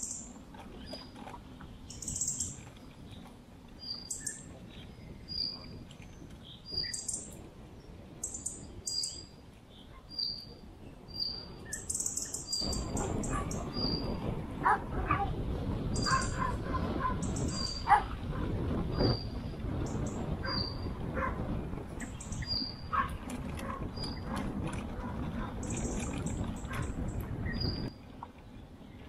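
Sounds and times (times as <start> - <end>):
small bird chirping: 1.8 - 2.7, 15.9 - 16.5, 22.0 - 22.9
tyres rumbling on dirt track: 12.6 - 29.0.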